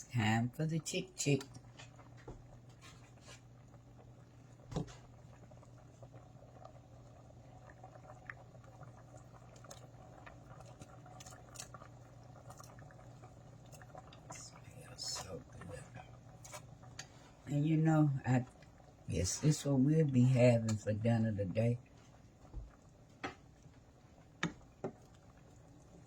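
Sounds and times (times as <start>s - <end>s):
soup liquid stirring: 16.3s - 17.3s.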